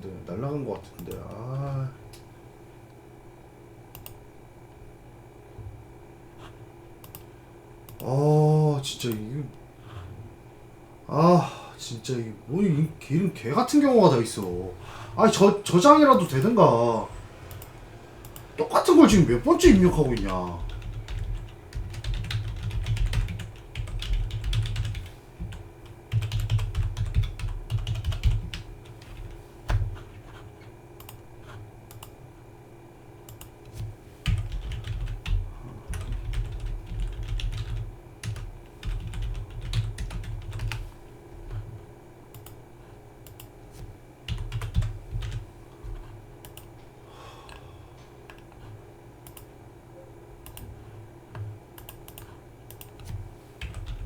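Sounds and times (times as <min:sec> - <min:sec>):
faint steady hum: 0:00.0 - 0:54.0
typing on a computer keyboard: 0:19.6 - 0:29.8, 0:34.2 - 0:40.8, 0:44.3 - 0:45.4, 0:51.8 - 0:54.0.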